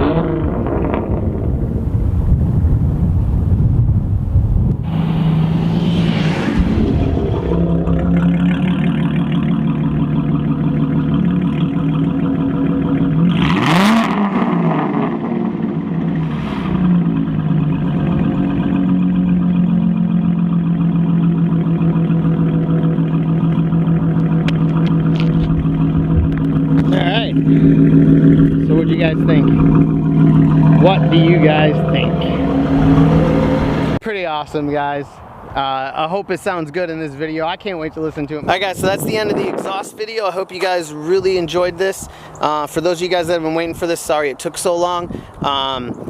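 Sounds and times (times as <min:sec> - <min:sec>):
car engine at high revs: 0:00.0 - 0:02.1, 0:04.6 - 0:34.0
rush of noise: 0:00.0 - 0:10.3, 0:13.3 - 0:19.0, 0:25.2 - 0:34.0.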